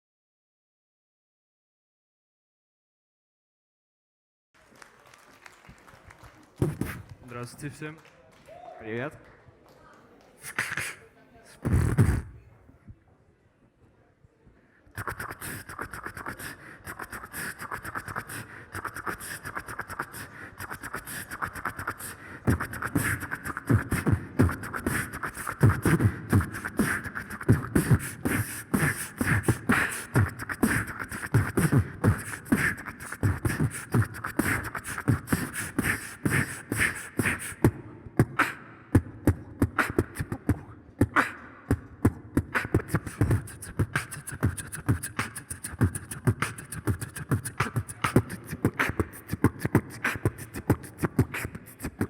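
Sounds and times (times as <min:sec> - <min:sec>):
beatboxed kick-drum beats: 0:06.6 - 0:07.8, 0:10.4 - 0:12.5, 0:14.9 - 0:52.0
mouth clicks and hi-hat sounds: 0:06.6 - 0:07.9, 0:10.4 - 0:11.0, 0:11.6 - 0:12.4, 0:14.9 - 0:52.0.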